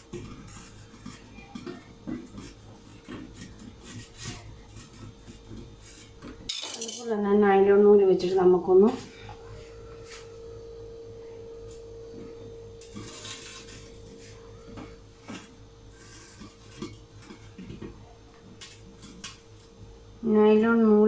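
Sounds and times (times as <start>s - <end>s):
dishes and utensils clinking: 0.0s - 7.2s, 11.6s - 19.8s
faint steady hum: 0.0s - 21.0s.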